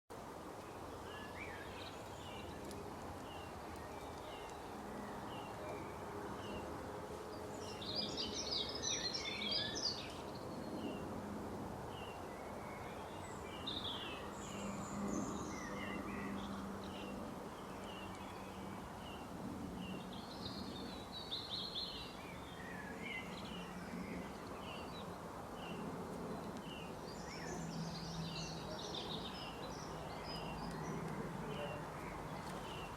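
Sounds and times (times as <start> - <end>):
bird chirping: 7.4 - 11.0.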